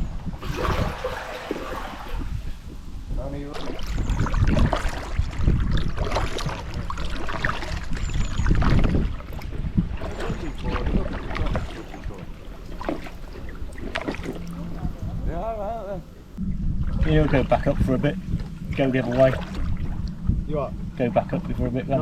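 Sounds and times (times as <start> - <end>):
low rumbling noise: 0.0 - 22.0
paddle strokes splashing water: 0.4 - 2.5, 3.4 - 15.3, 16.0 - 20.3.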